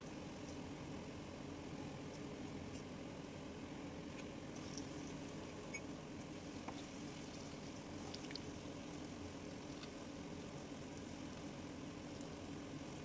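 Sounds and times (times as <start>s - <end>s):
oil bubbling while deep-frying: 0.0s - 13.0s
oil crackles: 4.6s - 13.0s.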